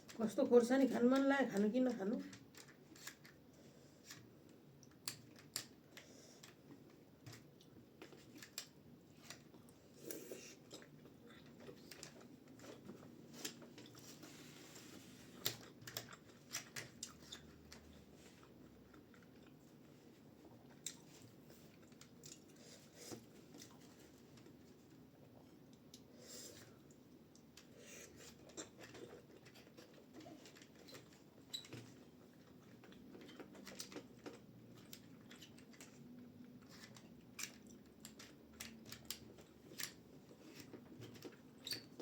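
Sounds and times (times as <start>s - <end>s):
chewing food: 9.2s - 24.6s, 25.6s - 42.0s.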